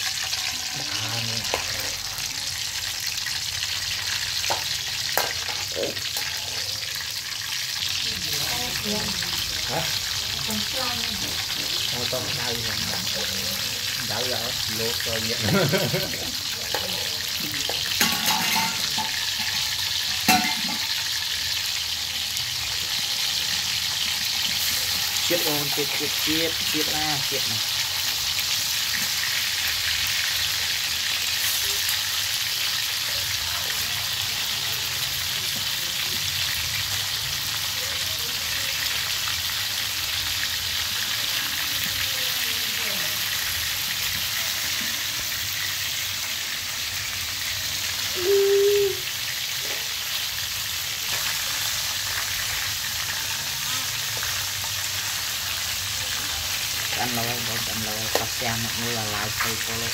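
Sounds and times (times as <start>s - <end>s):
frying in hot oil sizzle: 0.0s - 59.9s
metal spatula scraping pan: 17.7s - 21.2s.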